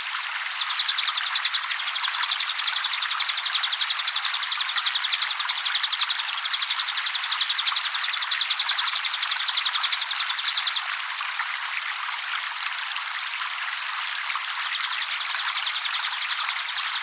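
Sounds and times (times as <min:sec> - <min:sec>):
trickle of running water: 0:00.0 - 0:17.0
bird trilling high notes: 0:14.6 - 0:17.0.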